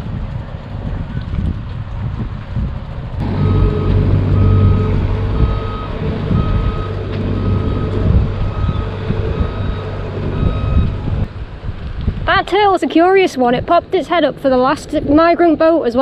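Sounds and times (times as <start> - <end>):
vehicle engine rumble: 0.0 - 14.8
reversing alarm beeping: 3.2 - 11.3.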